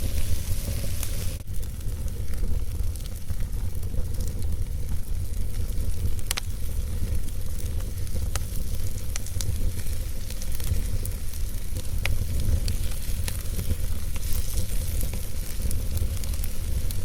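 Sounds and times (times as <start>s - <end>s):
low steady rumble: 0.0s - 17.0s
wood fire crackling and popping: 0.0s - 17.0s.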